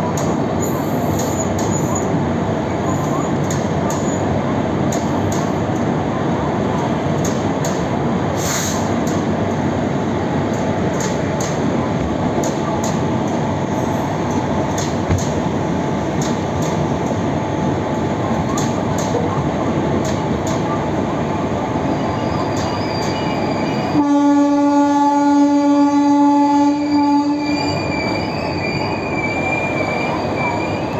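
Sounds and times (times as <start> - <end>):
train coaches rumbling: 0.0 - 30.9
train horn: 23.9 - 27.9.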